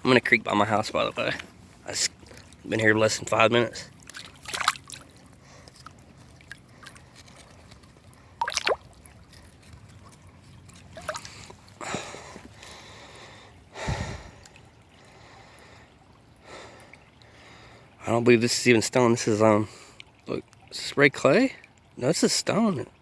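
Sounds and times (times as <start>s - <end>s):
creek water trickling: 0.0s - 23.0s
water splashing: 0.7s - 12.4s.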